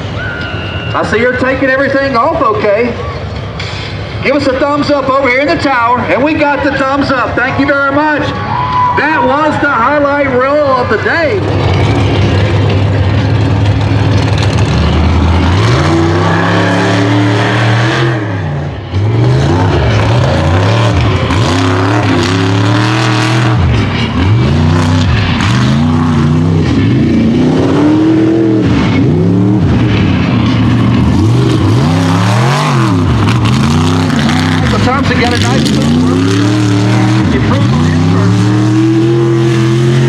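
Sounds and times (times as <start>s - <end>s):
truck engine revving: 0.0s - 40.0s.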